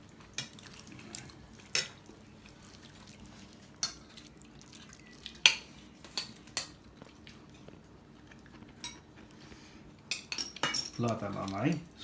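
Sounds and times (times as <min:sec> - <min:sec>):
spoons clinking on dishes: 0:10.1 - 0:11.9.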